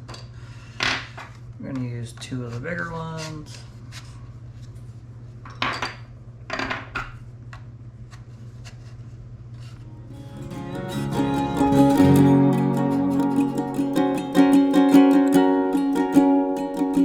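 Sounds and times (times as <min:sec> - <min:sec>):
low steady hum: 0:09.6 - 0:17.0
music with plucked strings: 0:09.9 - 0:17.0.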